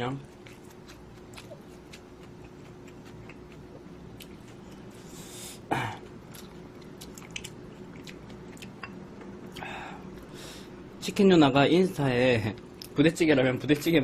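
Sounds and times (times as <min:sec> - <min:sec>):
person chewing noodles: 0:00.2 - 0:10.4.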